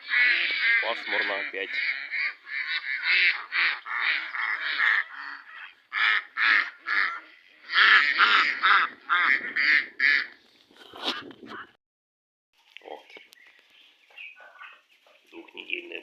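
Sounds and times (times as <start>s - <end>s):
waterfowl calling loudly: 0.0s - 10.4s.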